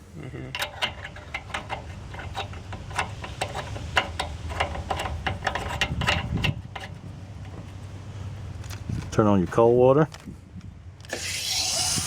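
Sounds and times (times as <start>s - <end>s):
caps clicking as screwed on: 0.5s - 7.7s.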